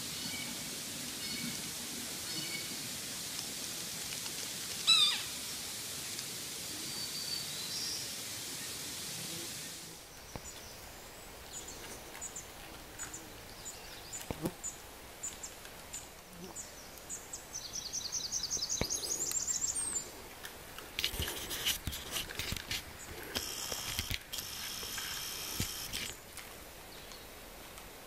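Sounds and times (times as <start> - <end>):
songbird chirping: 6.0 - 20.2.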